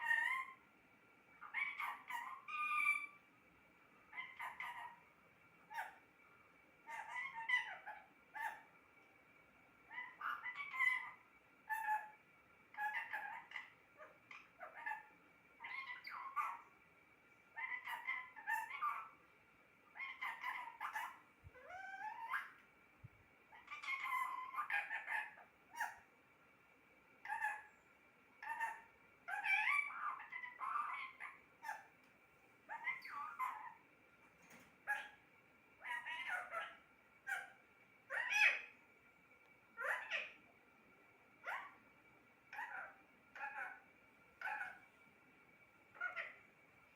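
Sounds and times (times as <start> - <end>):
parrot chattering and calling: 0.0 - 0.6, 1.4 - 3.2, 4.1 - 5.1, 5.7 - 6.0, 6.8 - 8.7, 9.9 - 16.7, 17.5 - 19.2, 19.9 - 22.6, 23.5 - 26.1, 27.2 - 27.8, 28.4 - 32.0, 32.7 - 33.8, 34.8 - 35.2, 35.8 - 38.8, 39.8 - 40.4, 41.4 - 41.8, 42.5 - 44.9, 45.9 - 46.4.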